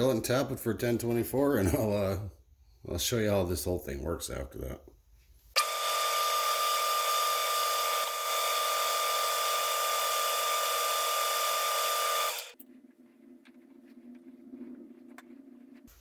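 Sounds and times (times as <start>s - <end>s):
electric drill whining: 5.6s - 12.6s
faint low hum: 12.6s - 16.0s.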